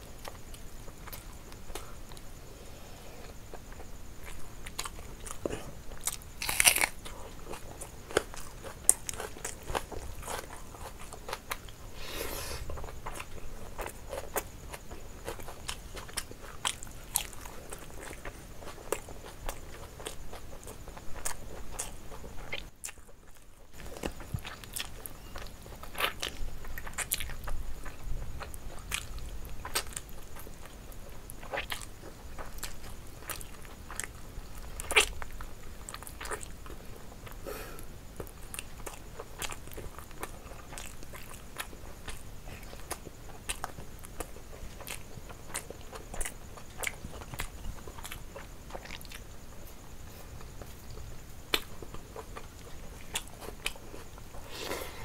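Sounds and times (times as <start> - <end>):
chewing and lip smacks: 38.2 - 54.4.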